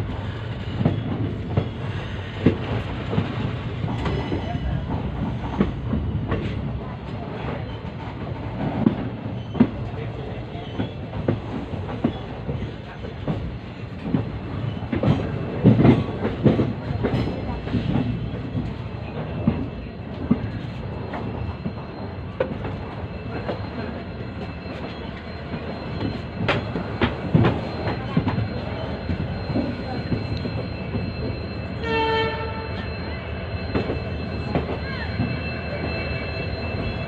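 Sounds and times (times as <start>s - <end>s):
train rumbling: 0.0s - 37.0s
train horn: 31.8s - 33.1s.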